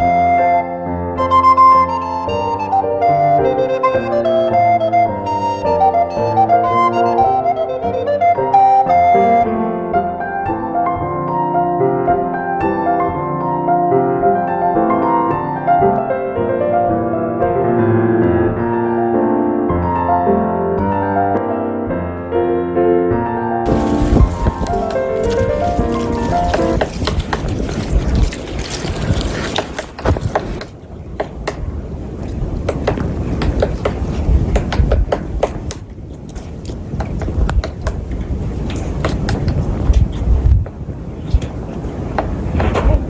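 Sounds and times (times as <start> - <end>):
piano piece: 0.0 - 31.0
low wind rumble: 23.4 - 43.0
woodpecker pecking at wood: 24.0 - 31.7, 32.6 - 38.1.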